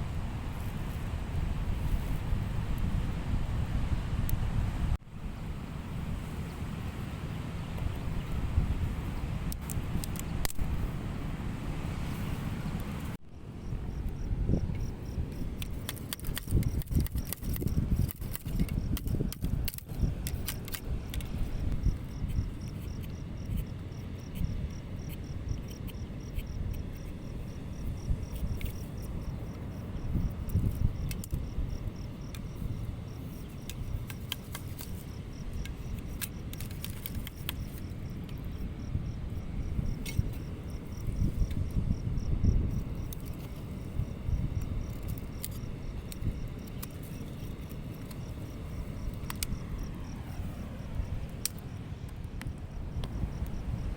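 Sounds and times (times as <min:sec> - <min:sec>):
cricket chirping: 0:13.2 - 0:53.9.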